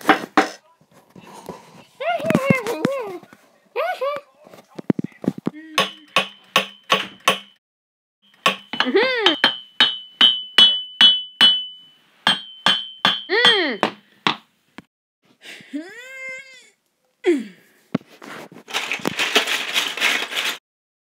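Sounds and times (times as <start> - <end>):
metallic hammer tapping: 5.8 - 7.6, 8.3 - 14.4.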